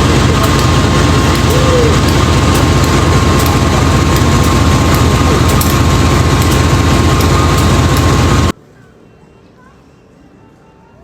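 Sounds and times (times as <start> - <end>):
diesel locomotive engine throbbing: 0.0 - 8.5
faint steady whine: 0.0 - 9.4.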